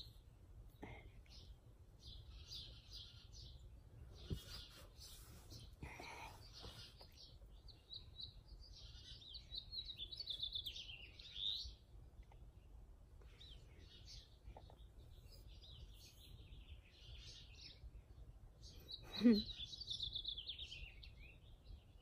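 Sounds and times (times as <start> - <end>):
songbirds chirping and singing: 0.0 - 22.0.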